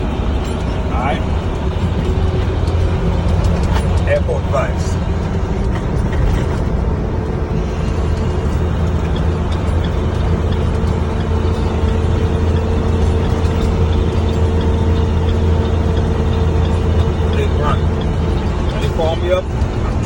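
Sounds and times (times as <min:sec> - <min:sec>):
truck engine and road drone: 0:00.0 - 0:20.0.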